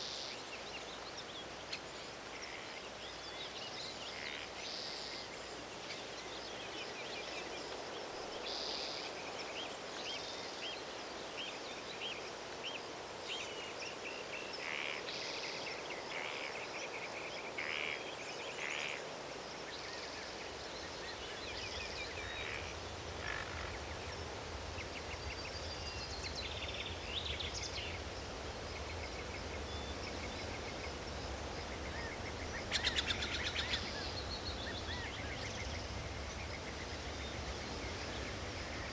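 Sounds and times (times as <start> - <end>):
steady background hiss: 0.0 - 38.9
birds singing and chirping: 23.4 - 38.9.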